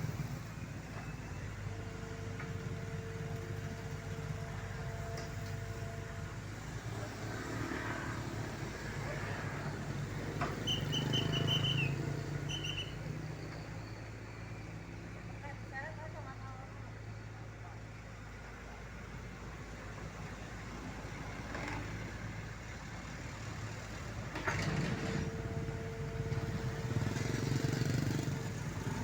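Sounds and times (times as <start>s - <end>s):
diesel engine running: 0.0s - 29.0s
high chirps: 10.6s - 12.9s.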